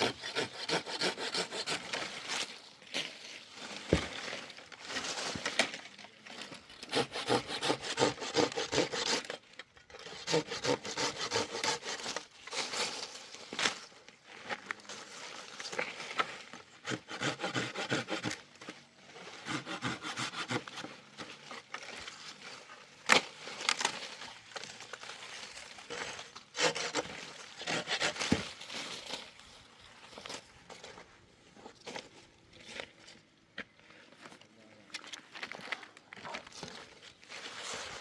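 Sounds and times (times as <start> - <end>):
hand saw rasping through wood: 0.0 - 2.4, 6.8 - 12.3, 16.8 - 18.4, 19.4 - 20.9, 26.5 - 28.5.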